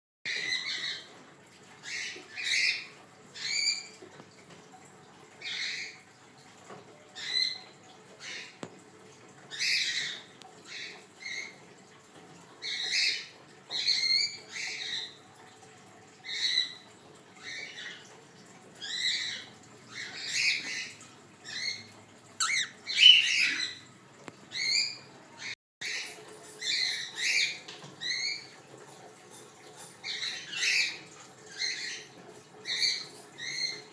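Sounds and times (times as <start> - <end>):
cockatiels squawking: 22.4 - 23.8.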